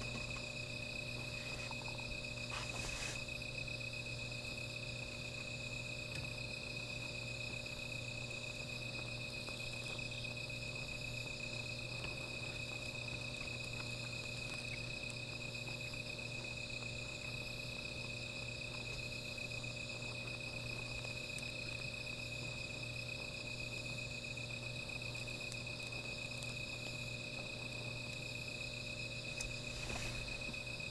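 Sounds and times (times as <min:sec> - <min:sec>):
low steady hum: 0:00.0 - 0:17.6
crickets and insects trilling: 0:00.0 - 0:30.9.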